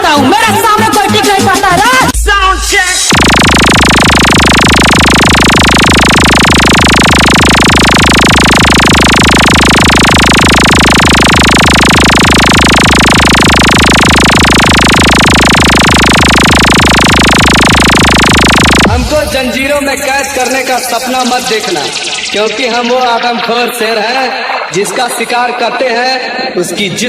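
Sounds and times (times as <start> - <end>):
pulsing deep bass: 0.0 - 23.8
dense electronic noise: 0.0 - 26.7.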